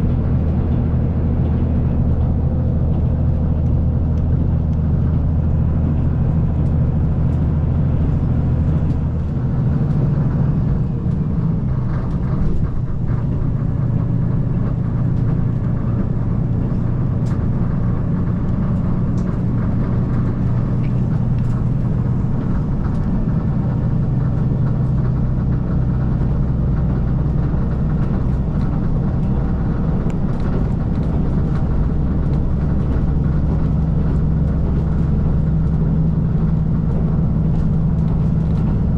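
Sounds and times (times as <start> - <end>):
diesel railcar engine hum: 0.0 - 38.9.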